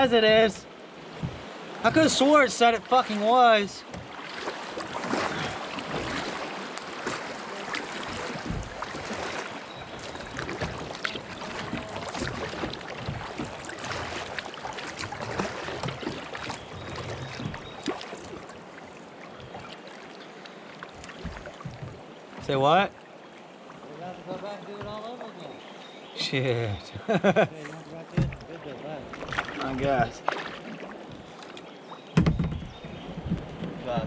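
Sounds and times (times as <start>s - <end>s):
water wash: 0.0s - 18.8s, 27.8s - 31.1s
kayak paddles splashing: 0.0s - 34.0s.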